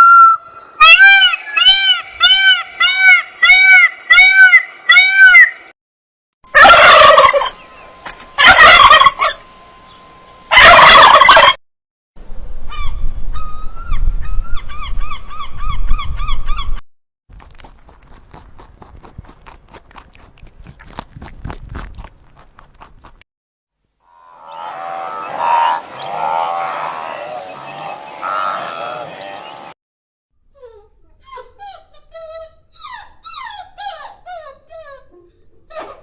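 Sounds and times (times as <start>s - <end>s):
fowl calling loudly: 0.0s - 5.6s, 6.5s - 7.6s, 8.4s - 9.4s, 10.5s - 11.6s, 24.1s - 29.7s.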